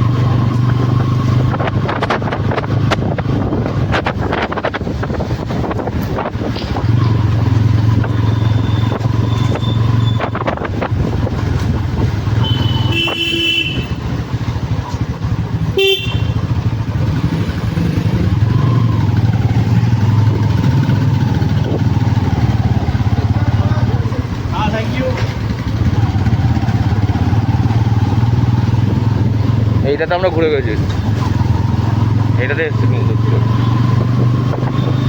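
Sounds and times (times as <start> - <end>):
motorcycle engine running: 0.0 - 35.0
vehicle horns honking: 12.4 - 14.2, 15.7 - 16.6.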